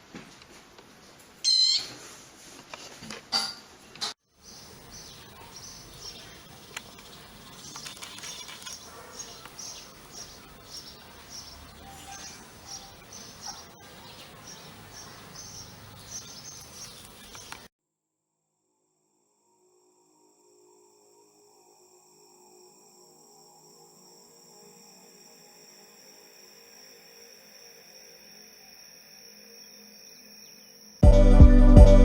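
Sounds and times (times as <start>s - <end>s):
sharp high bird call: 1.4s - 1.9s
small birds chirping: 4.4s - 17.7s.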